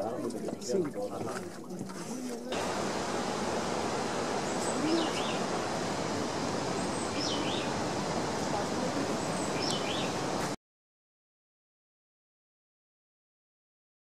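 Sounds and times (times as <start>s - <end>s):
steady rushing noise: 2.5s - 10.6s
bird calling high: 4.4s - 5.5s, 6.6s - 7.9s, 9.2s - 10.3s.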